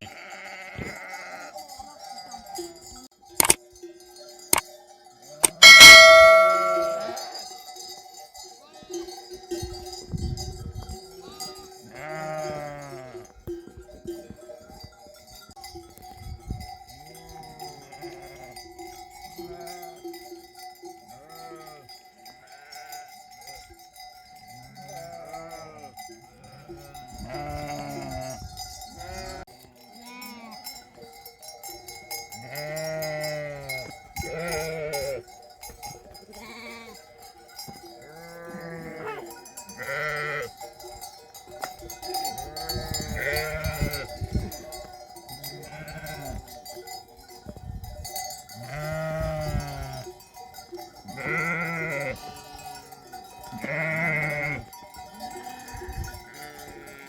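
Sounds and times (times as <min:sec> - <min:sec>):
sheep and lambs bleating: 0:00.0 - 0:01.7, 0:05.4 - 0:07.4, 0:11.2 - 0:13.4, 0:17.0 - 0:18.7, 0:19.4 - 0:20.0, 0:21.1 - 0:23.1, 0:24.6 - 0:30.7, 0:32.4 - 0:35.2, 0:36.2 - 0:37.2, 0:38.0 - 0:40.6, 0:42.3 - 0:46.5, 0:48.6 - 0:50.2, 0:51.0 - 0:57.0
sheep bells ringing: 0:00.0 - 0:57.0.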